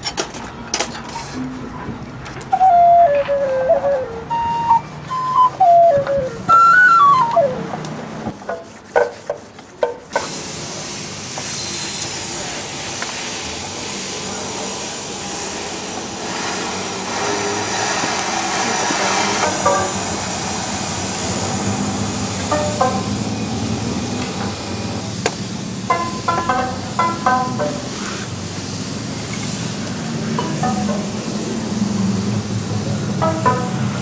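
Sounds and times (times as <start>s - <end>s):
high flute-like melody: 2.5s - 7.8s, 19.4s - 20.2s, 22.2s - 23.7s, 25.9s - 28.0s, 30.4s - 31.6s, 33.0s - 34.0s
steady hiss: 7.9s - 34.0s.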